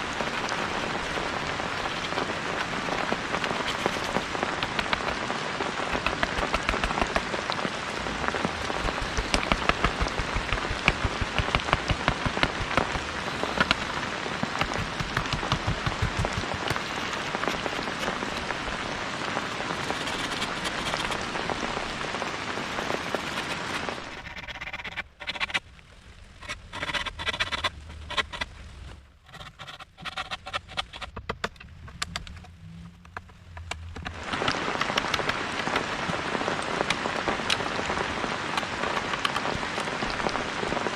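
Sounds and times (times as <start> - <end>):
scattered water drips: 0.0 - 24.1
heavy rain falling: 0.0 - 29.1, 33.2 - 40.9.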